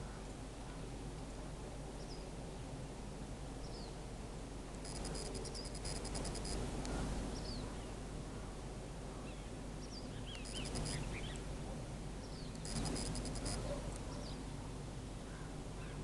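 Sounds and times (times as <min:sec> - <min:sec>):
rapid high ticking trill: 0:04.7 - 0:06.7, 0:10.3 - 0:11.2, 0:12.5 - 0:13.7
high falling bird chirps: 0:09.3 - 0:11.4.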